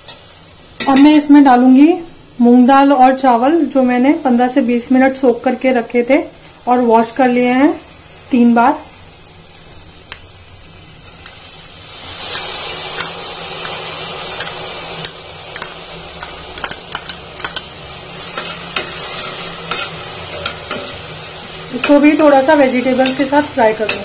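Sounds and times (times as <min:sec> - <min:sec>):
rice sizzling in hot ghee: 0:00.0 - 0:24.0
steel spoon scraping and clinking: 0:12.3 - 0:21.0.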